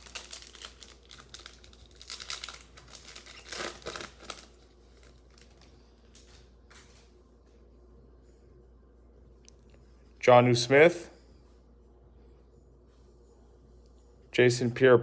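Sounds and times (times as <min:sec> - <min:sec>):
plastic foil wrapper crinkling: 0:00.0 - 0:06.4.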